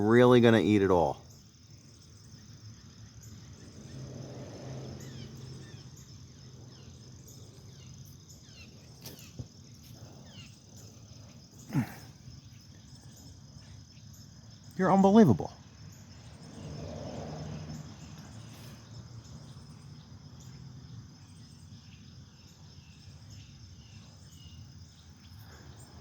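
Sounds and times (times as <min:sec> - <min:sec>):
crickets chirring: 0:00.0 - 0:26.0
faint bird chirps: 0:05.0 - 0:16.6, 0:21.2 - 0:26.0.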